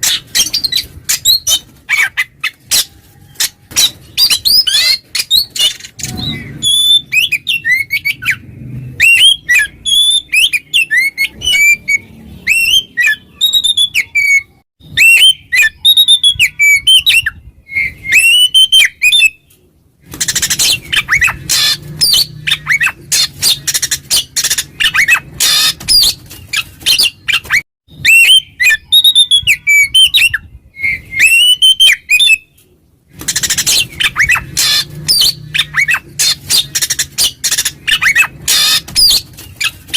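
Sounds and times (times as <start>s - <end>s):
bird singing whistled phrases: 9.0s - 19.4s, 28.0s - 32.5s
bird scratchy chatter: 20.1s - 27.6s, 33.1s - 39.9s.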